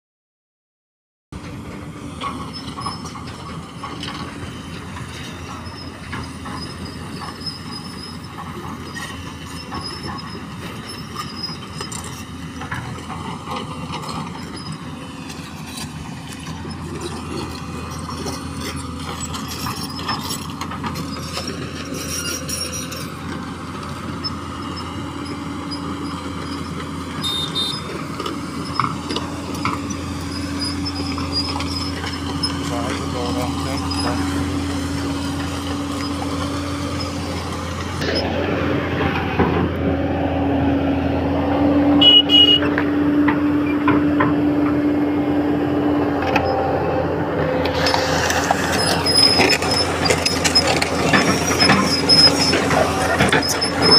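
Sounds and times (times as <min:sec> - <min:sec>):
moving vehicle rumble: 0:01.3 - 0:53.9
faint high squeals: 0:21.0 - 0:23.2, 0:24.2 - 0:28.0, 0:28.6 - 0:34.8, 0:48.7 - 0:53.9.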